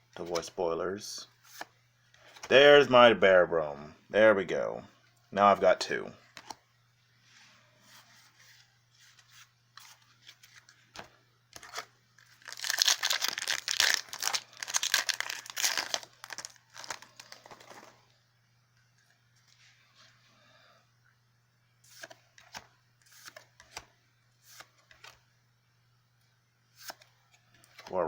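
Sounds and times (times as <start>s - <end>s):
foil wrapper tearing and crinkling: 12.2s - 18.0s.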